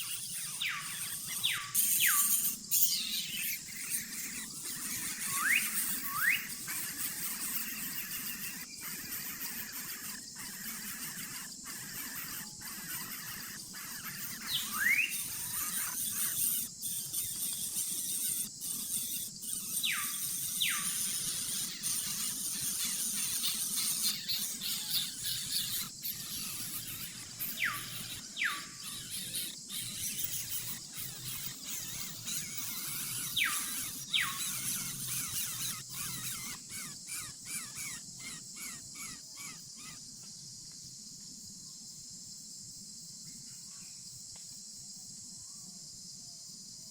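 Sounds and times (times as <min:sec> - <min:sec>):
bird whistled calls sweeping down: 0:05.2 - 0:06.5, 0:14.4 - 0:15.2.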